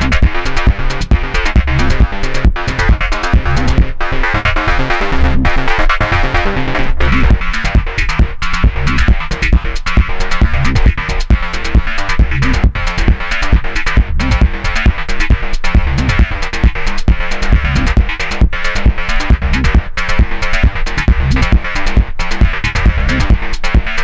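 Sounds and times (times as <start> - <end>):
electronic dance music: 0.0 - 7.9
drum machine beat: 0.0 - 24.0
synth bass line: 0.0 - 24.0.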